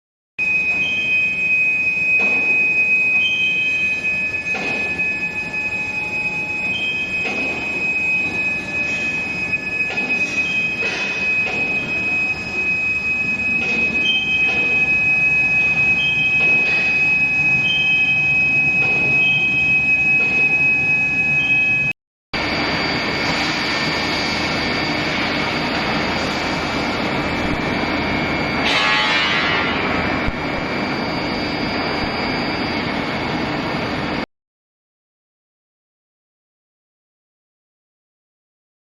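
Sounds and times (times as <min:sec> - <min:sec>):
machine high-pitched whine: 0:00.4 - 0:34.3.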